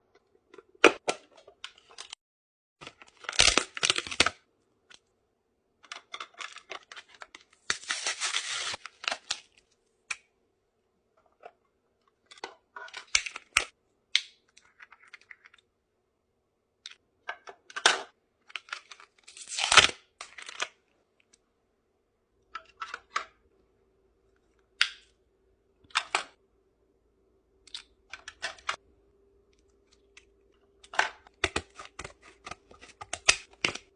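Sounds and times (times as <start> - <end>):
packaging rustling and crinkling: 7.8 - 9.3
faint steady hum: 20.9 - 31.4.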